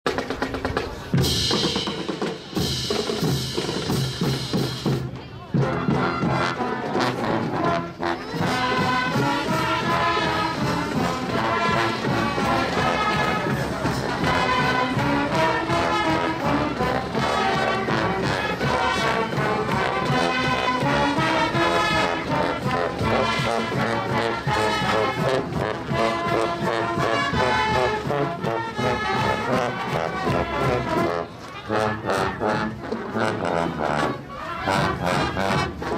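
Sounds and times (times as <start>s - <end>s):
drums: 0.0s - 35.9s
marching band playing: 0.1s - 35.9s
brass melody: 5.6s - 35.9s.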